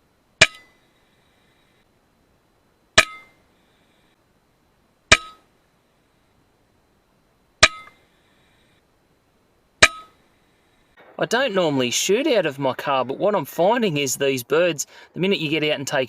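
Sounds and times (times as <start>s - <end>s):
air rifle shots with metallic ring: 0.4s - 0.8s.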